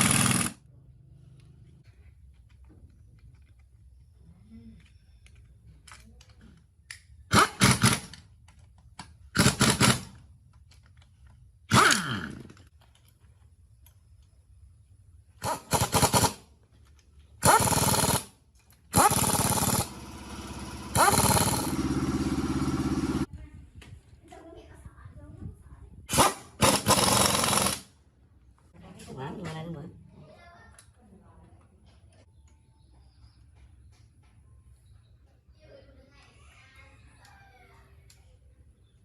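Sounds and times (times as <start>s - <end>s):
car engine starting and running: 19.1s - 23.3s.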